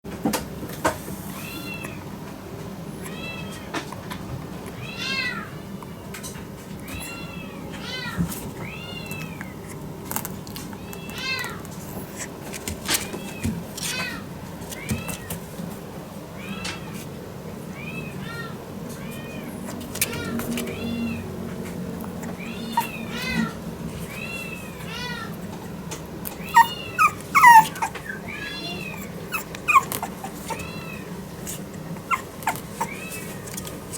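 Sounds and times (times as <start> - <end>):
puppy whining: 3.0 - 9.9, 17.8 - 25.4, 26.3 - 33.9
puppy yelping: 22.0 - 25.4, 26.3 - 33.6.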